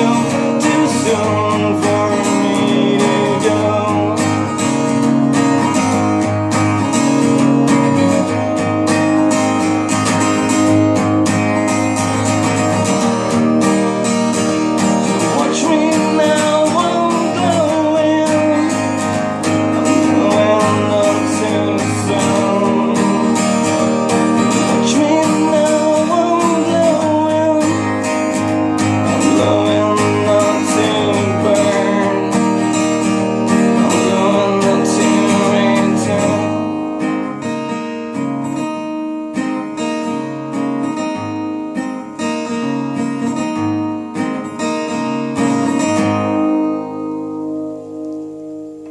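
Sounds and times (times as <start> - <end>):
acoustic guitar strumming: 0.0 - 48.9.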